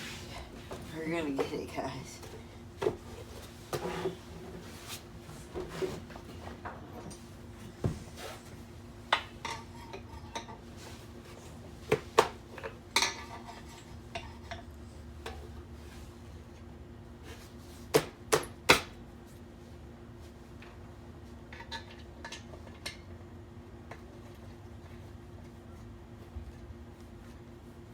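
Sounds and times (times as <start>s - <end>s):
steady low hum: 0.0s - 18.2s.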